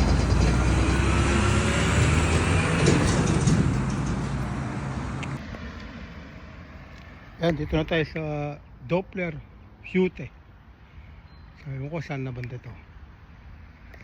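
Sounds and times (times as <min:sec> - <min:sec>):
vehicle passing close by: 0:00.0 - 0:06.8.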